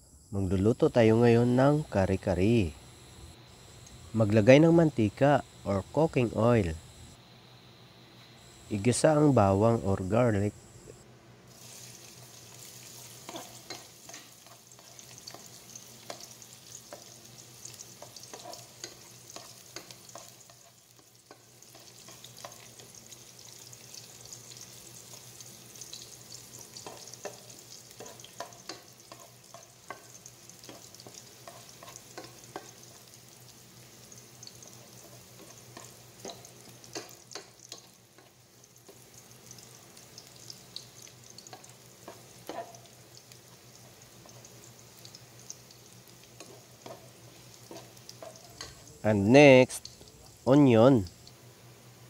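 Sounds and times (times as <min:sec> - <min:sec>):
garlic sizzling in oil: 0:10.9 - 0:52.0
spatula scraping and knocking on pot: 0:18.0 - 0:20.7, 0:46.4 - 0:48.8.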